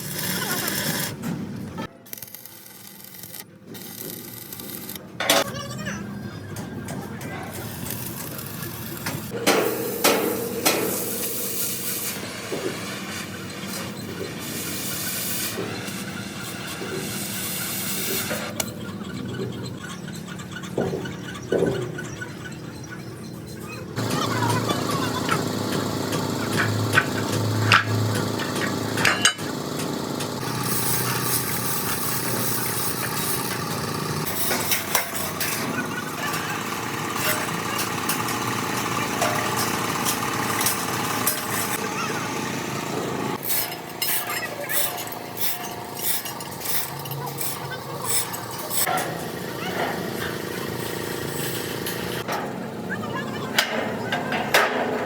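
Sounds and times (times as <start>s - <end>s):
shop noise hiss: 0.0s - 19.4s, 23.4s - 55.0s
machinery noise: 0.0s - 22.5s, 23.8s - 55.0s.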